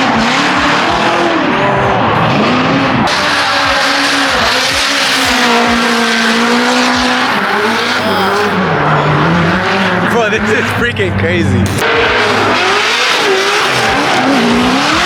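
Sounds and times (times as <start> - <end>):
car engines revving high: 0.0 - 15.0
tyres screeching: 5.0 - 8.6.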